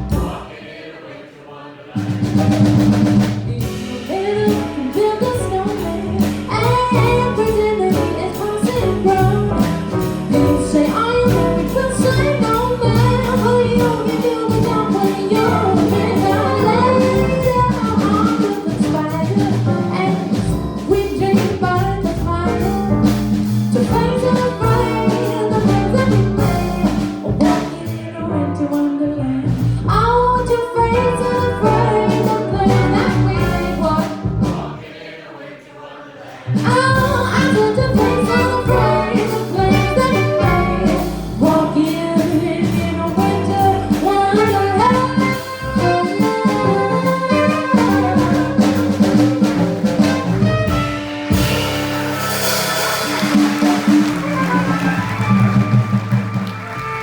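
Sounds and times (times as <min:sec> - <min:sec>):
jazz band playing: 0:00.0 - 0:00.6, 0:02.0 - 0:34.9, 0:36.5 - 0:57.0
woman singing: 0:03.4 - 0:34.3, 0:36.6 - 0:49.2.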